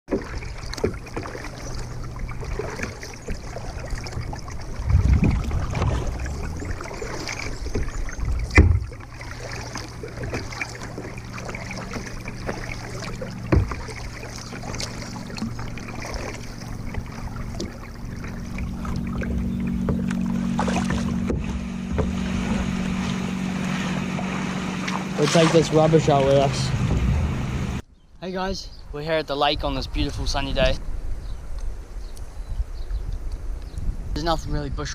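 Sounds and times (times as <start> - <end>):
paddle strokes in water: 0.1 - 27.2
steady low hum: 0.2 - 27.9
sharp knocks: 19.8 - 22.7.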